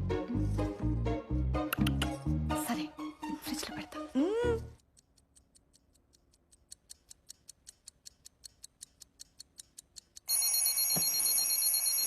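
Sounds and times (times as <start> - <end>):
fast clock ticking: 4.9 - 10.5
high-pitched alarm ringing: 10.3 - 12.0.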